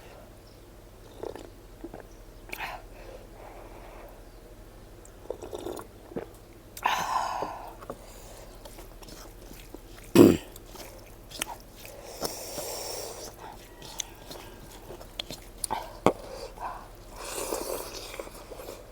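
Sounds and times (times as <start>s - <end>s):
person chewing food: 1.0s - 2.9s, 5.1s - 18.9s
wet mouth clicks: 1.1s - 2.8s, 5.0s - 18.9s.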